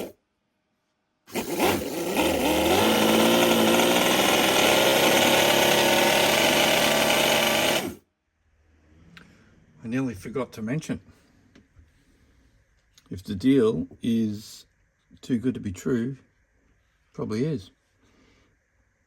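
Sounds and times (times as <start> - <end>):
model engine running: 1.3 - 8.0.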